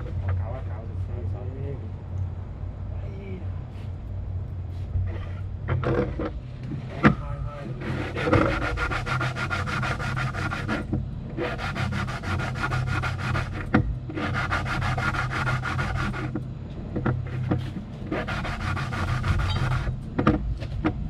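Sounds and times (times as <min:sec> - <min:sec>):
low machine hum: 0:00.0 - 0:21.0
hand scrubbing or sanding strokes: 0:07.7 - 0:16.4, 0:17.3 - 0:19.9.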